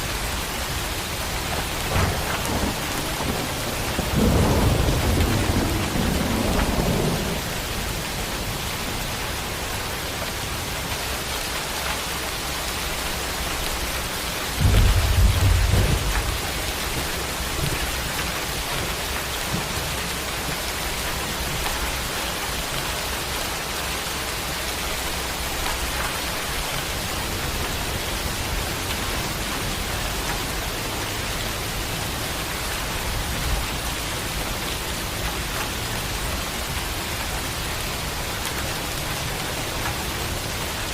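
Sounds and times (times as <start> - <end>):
steady rain falling: 0.0 - 40.9
thunder rumbling: 0.1 - 10.3, 14.5 - 22.6.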